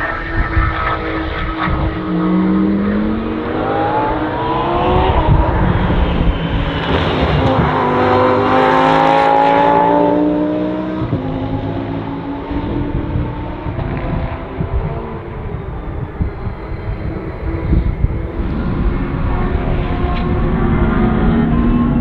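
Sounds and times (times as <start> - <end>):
race car engine accelerating: 0.0 - 22.0.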